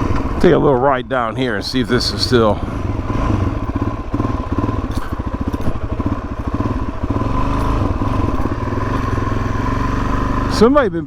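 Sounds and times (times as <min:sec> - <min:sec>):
motorcycle engine chugging: 0:00.0 - 0:11.0.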